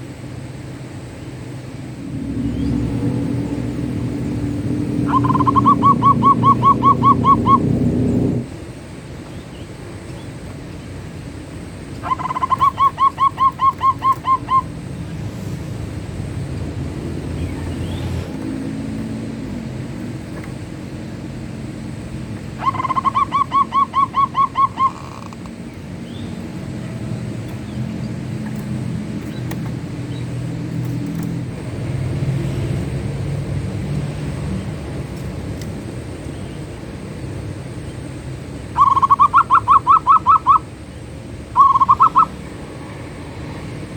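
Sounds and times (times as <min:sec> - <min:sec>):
low background rumble: 0:00.0 - 0:43.9
dove cooing: 0:02.0 - 0:08.5, 0:11.8 - 0:15.2, 0:15.9 - 0:31.0, 0:38.1 - 0:40.8, 0:41.6 - 0:42.5.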